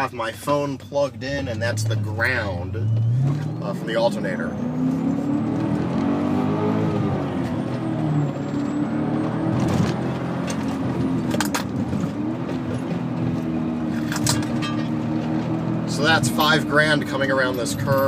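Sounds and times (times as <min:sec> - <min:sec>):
car engine from inside cabin: 0:00.0 - 0:18.0.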